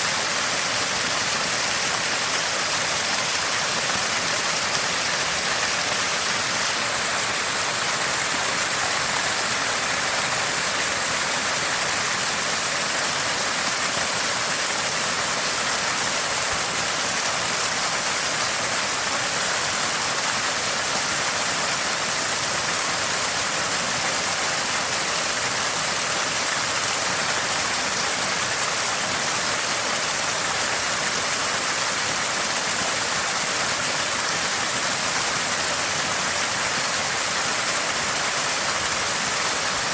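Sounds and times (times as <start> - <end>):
spring water gushing and splashing: 0.0 - 39.9.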